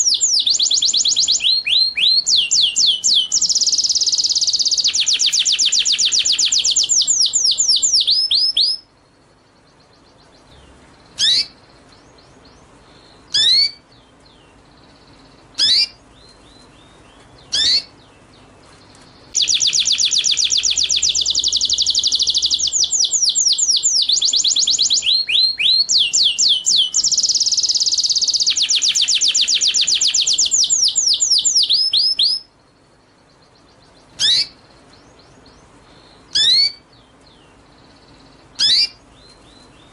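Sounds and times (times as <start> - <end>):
songbird rapid high trill: 0.0 - 8.9, 10.4 - 11.8, 12.4 - 13.9, 14.7 - 16.0, 17.4 - 18.0, 19.2 - 32.8, 33.4 - 34.7, 35.5 - 36.9, 37.8 - 39.0.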